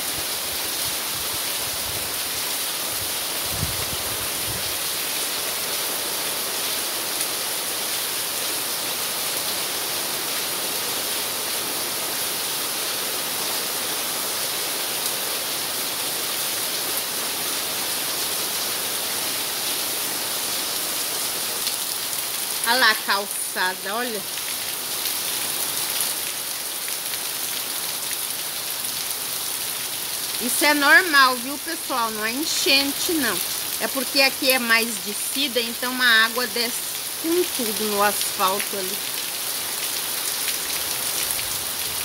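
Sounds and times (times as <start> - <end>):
heavy rain pouring: 0.0 - 42.0.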